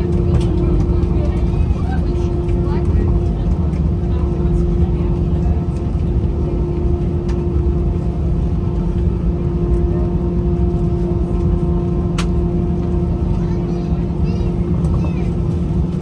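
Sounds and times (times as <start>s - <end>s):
aircraft cabin hum: 0.0s - 16.0s
idling engines rumbling: 0.0s - 16.0s.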